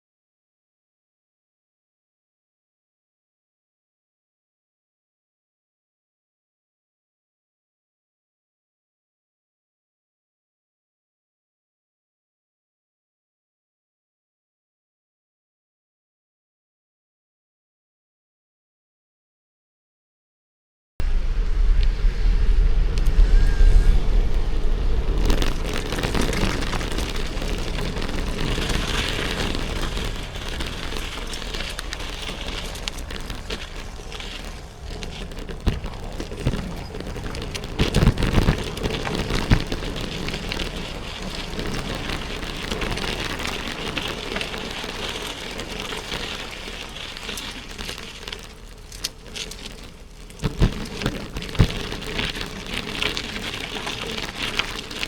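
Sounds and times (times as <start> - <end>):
wind and tyre noise: 21.0 - 55.0.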